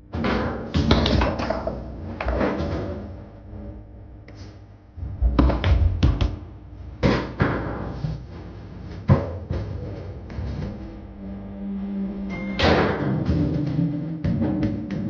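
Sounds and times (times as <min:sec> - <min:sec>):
foosball ball cracking off figures: 0:00.2 - 0:03.0
foosball rods thudding: 0:00.2 - 0:03.1.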